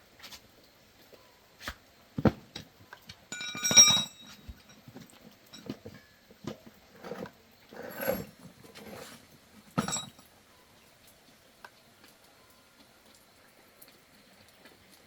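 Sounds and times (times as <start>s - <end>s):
metal parts clattering: 3.3s - 4.8s, 7.0s - 9.2s, 9.8s - 10.2s
ringing metallic clang: 3.3s - 4.8s, 9.8s - 10.2s.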